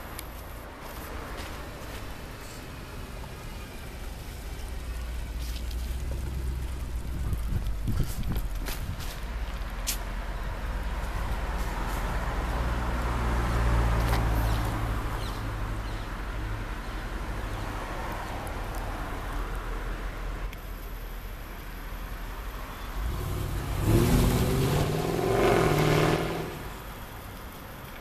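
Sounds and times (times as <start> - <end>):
car engine idling: 1.8 - 8.7.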